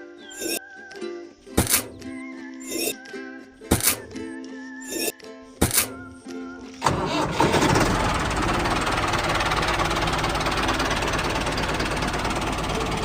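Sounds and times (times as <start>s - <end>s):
small engine knocking rattle: 6.9s - 13.0s.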